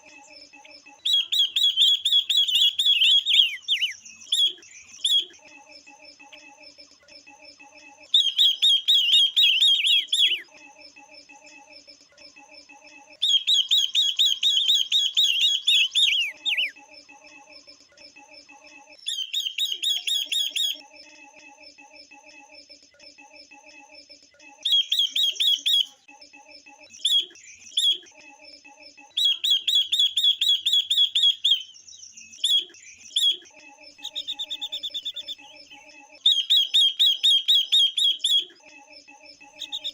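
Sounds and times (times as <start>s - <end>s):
birds chattering: 0.0s - 5.4s, 8.0s - 10.5s, 13.2s - 16.8s, 19.0s - 20.8s, 24.6s - 26.0s, 29.1s - 38.6s, 39.4s - 39.9s.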